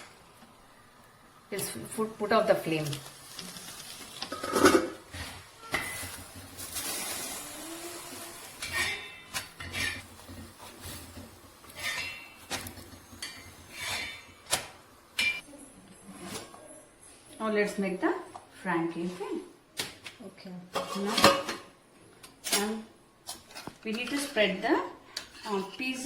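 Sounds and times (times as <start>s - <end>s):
utensils scraping: 2.9s - 15.4s
utensils knocking and clinking: 8.6s - 15.4s.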